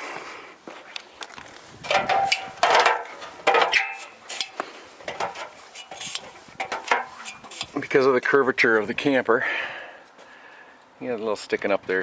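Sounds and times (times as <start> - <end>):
metal clanking: 1.8 - 7.9.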